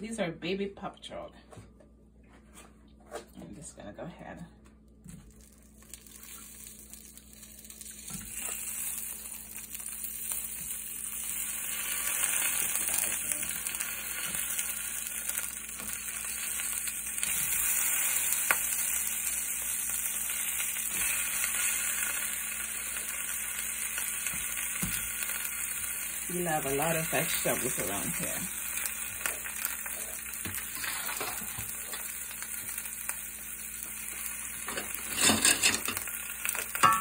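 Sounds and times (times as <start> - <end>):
vegetables sizzling in oil: 5.6 - 37.0.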